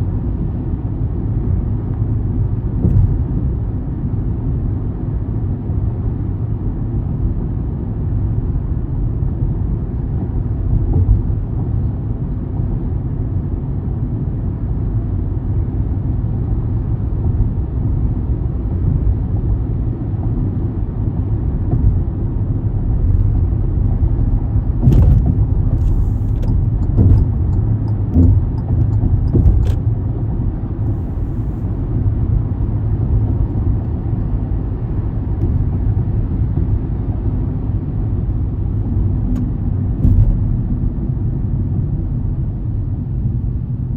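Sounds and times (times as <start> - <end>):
car road and engine noise: 0.0 - 43.9
short sharp knocks: 24.8 - 29.8.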